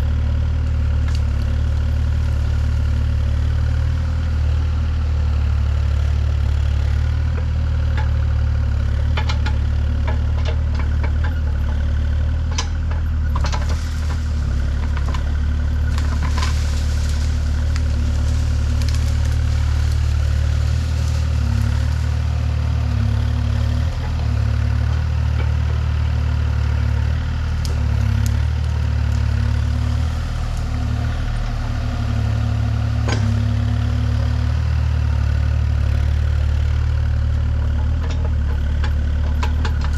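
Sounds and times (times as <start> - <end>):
large engine running: 0.0 - 39.9
knocks and clatter: 12.4 - 22.2.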